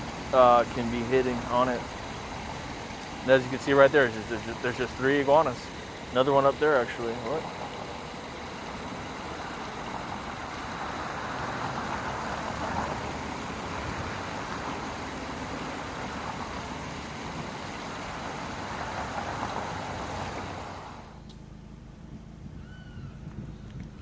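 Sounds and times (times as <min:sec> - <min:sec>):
car road noise: 0:00.0 - 0:22.6.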